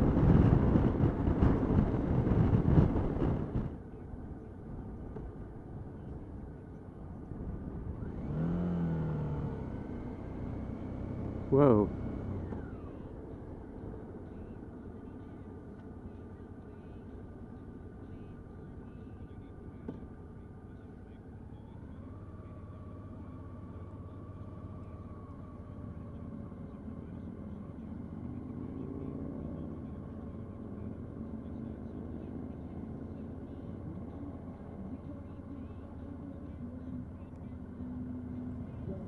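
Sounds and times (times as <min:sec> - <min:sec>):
wind rush: 0:00.0 - 0:03.7
motorcycle engine hum: 0:00.0 - 0:39.0
road noise: 0:00.0 - 0:39.0.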